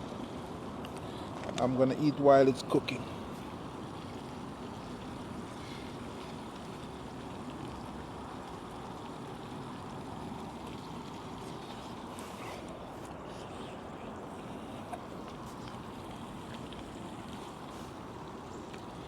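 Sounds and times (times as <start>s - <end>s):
food frying in a skillet: 2.6s - 12.5s.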